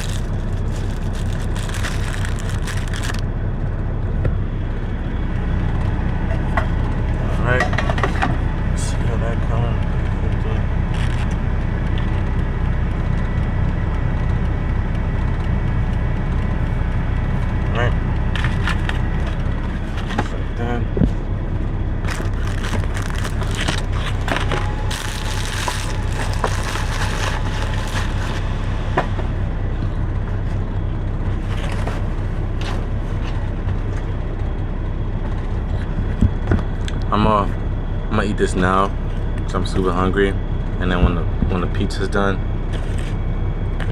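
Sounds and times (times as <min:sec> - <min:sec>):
food packaging crinkling: 0:00.0 - 0:03.2, 0:22.0 - 0:28.5
diesel truck engine idling: 0:00.0 - 0:43.9.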